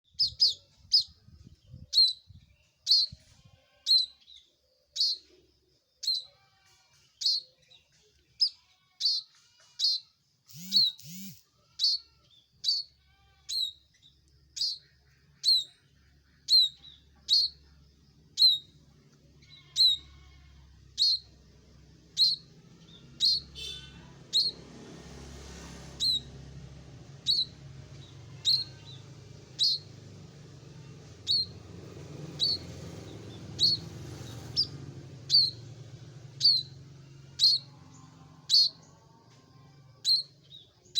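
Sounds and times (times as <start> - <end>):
bird calling sharp high notes: 9.9 - 12.0, 22.1 - 24.6.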